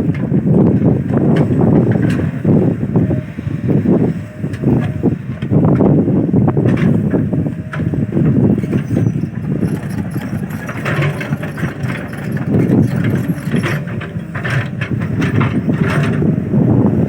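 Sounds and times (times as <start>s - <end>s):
excavator diesel engine running: 0.1s - 17.0s
metal knocks and clanks: 8.6s - 16.2s.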